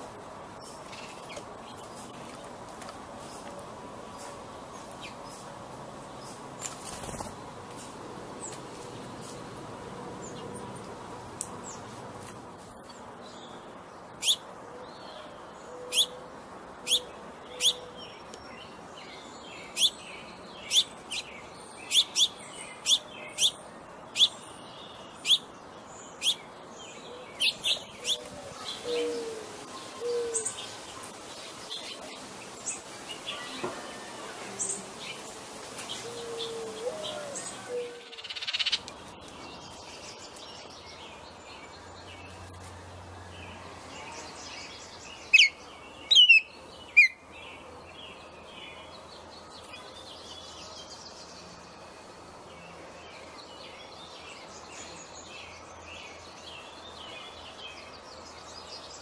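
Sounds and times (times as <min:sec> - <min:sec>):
songbird chip calls: 0:36.0 - 0:38.8, 0:44.1 - 0:47.2.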